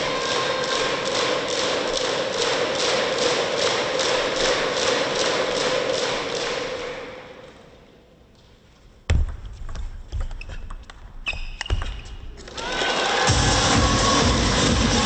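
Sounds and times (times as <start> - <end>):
crowd clapping rhythmically: 0.0 - 7.4, 12.4 - 15.0
table tennis thumps and clicks: 9.1 - 12.2
shoe squeak: 10.1 - 12.4.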